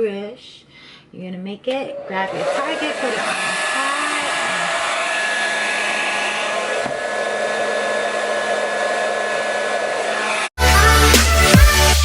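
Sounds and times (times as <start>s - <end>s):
hair dryer blowing: 1.9s - 10.5s.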